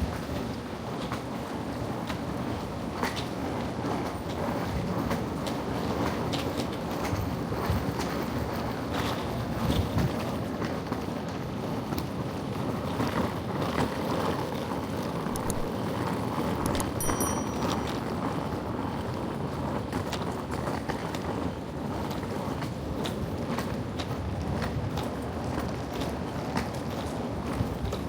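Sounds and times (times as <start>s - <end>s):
faint clicks: 15.3s - 15.7s, 16.6s - 18.0s.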